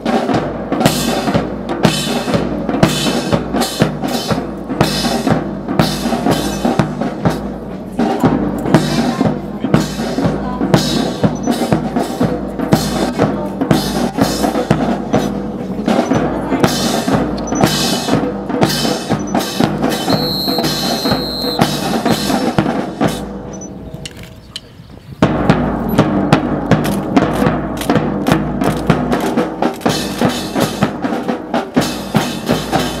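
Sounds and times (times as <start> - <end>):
marching snare and bass drums: 0.0 - 24.2, 25.2 - 33.0
high steady tone: 19.2 - 22.3.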